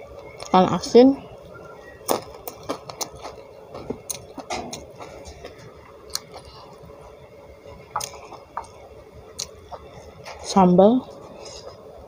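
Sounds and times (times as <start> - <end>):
person chewing food: 2.0 - 10.4.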